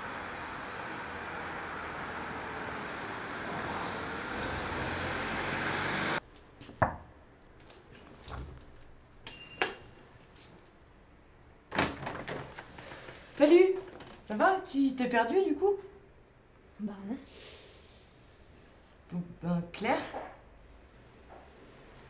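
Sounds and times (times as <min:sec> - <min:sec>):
street traffic noise: 0:00.0 - 0:06.7, 0:19.9 - 0:22.0
door opening clatter: 0:11.7 - 0:14.3.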